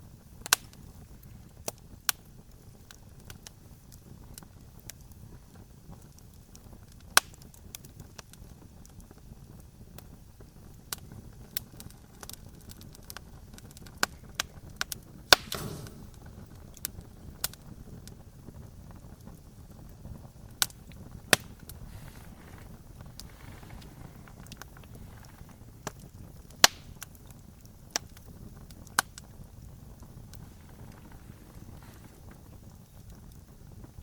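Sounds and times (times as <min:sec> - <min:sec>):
campfire crackling and popping: 0:00.0 - 0:34.0
low rumble of flames: 0:00.0 - 0:34.0
brief hiss: 0:15.3 - 0:16.3.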